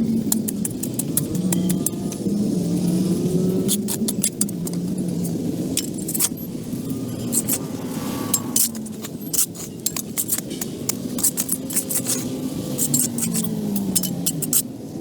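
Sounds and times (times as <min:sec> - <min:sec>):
metallic clinks and scrapes: 0:00.4 - 0:14.7
low rumble: 0:05.4 - 0:10.0.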